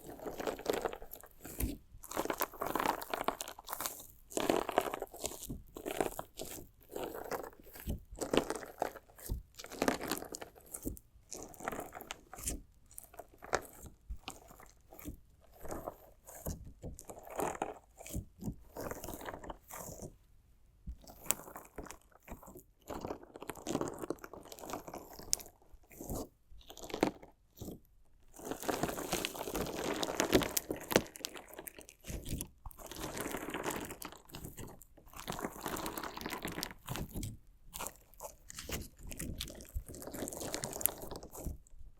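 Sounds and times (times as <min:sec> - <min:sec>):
slime crunching being cut: 0:28.5 - 0:41.6.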